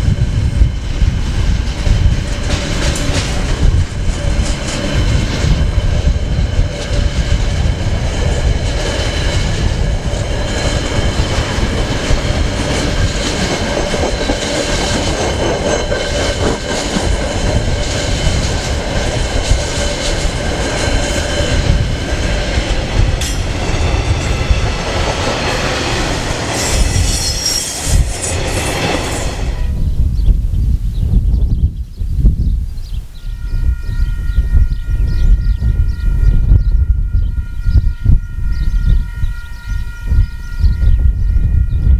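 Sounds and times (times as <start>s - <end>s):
train wheels rumbling on rails: 0.0s - 31.8s, 33.0s - 41.9s
clickety-clack of rail joints: 0.6s - 29.7s
high-pitched wheel squeal: 26.4s - 29.6s.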